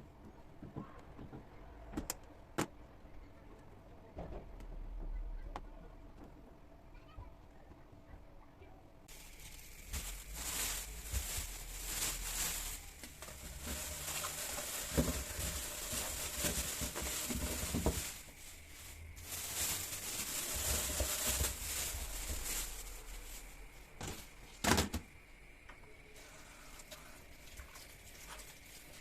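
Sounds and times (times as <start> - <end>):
plastic bags rustling: 9.1 - 25.0, 27.4 - 29.0.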